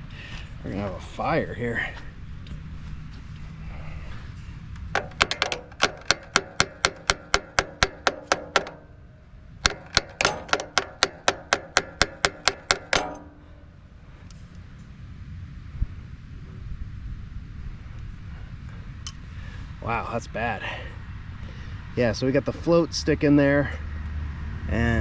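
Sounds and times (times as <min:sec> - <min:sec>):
quick metallic taps: 0:04.9 - 0:08.9, 0:09.6 - 0:13.6.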